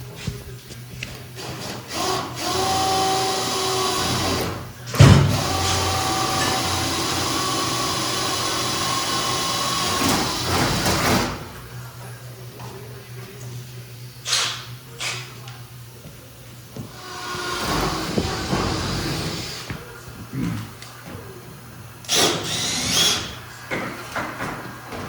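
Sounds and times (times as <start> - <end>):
power drill whining: 1.4 - 4.6, 5.4 - 11.4, 17.0 - 19.8, 22.1 - 23.4.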